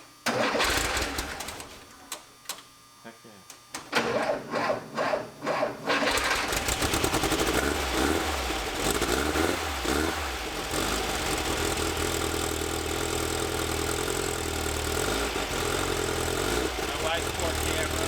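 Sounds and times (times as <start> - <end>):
air-cooled engine idling: 3.8 - 18.0.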